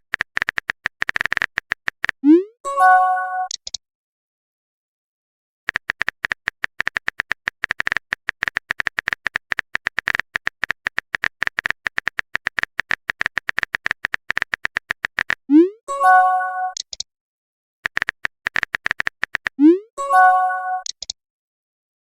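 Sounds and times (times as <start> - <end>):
keyboard typing clicks: 0.0 - 2.4, 3.4 - 3.8, 5.7 - 15.5, 16.7 - 17.1, 17.8 - 19.8, 20.4 - 21.2
notification chime: 2.7 - 3.5, 15.6 - 16.8, 19.6 - 20.9.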